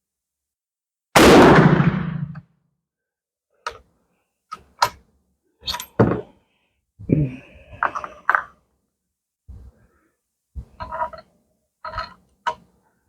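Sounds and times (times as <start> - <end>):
loud rifle shot: 1.2 - 2.4.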